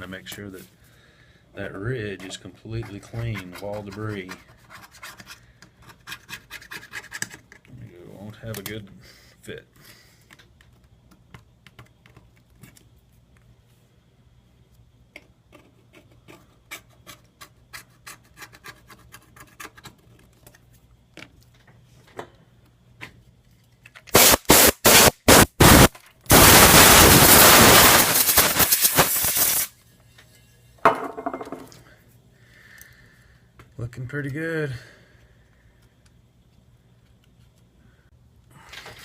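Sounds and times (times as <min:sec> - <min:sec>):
small tool scraping and ticking: 0:02.2 - 0:07.7, 0:15.2 - 0:20.7
compressed air blasts: 0:24.1 - 0:29.7.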